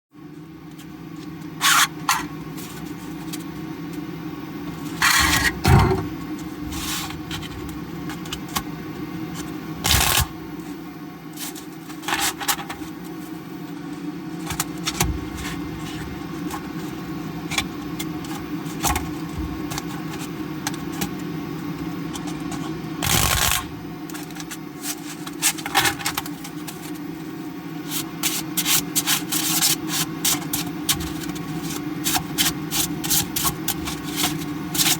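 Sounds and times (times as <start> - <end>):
steady low hum: 0.1 - 34.9
plastic cards shuffling and clattering: 9.3 - 10.3, 22.2 - 27.1.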